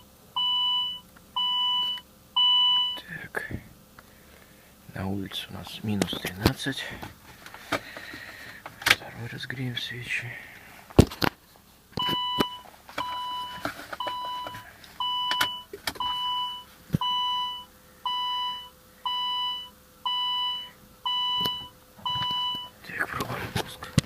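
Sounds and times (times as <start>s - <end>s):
dashboard warning chime beeping: 0.0s - 3.1s, 12.0s - 22.8s.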